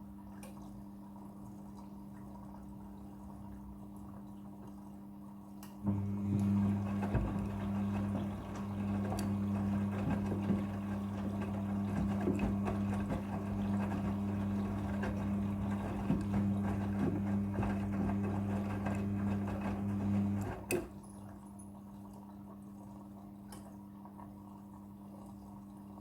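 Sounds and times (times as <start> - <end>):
washing machine motor hum: 0.0 - 26.0
laundry sloshing and knocking in drum: 5.9 - 21.0.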